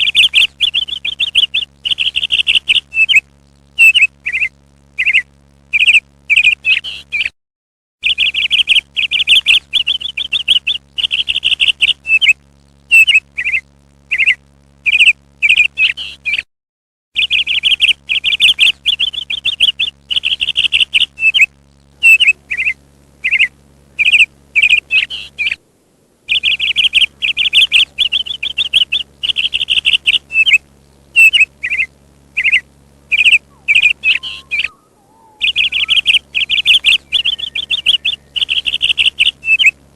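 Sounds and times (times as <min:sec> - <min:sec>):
faint low hum: 0:00.0 - 0:07.3, 0:08.0 - 0:16.4, 0:17.2 - 0:39.9
parrot chirping and trilling: 0:17.2 - 0:25.6, 0:26.3 - 0:30.6, 0:31.2 - 0:39.8.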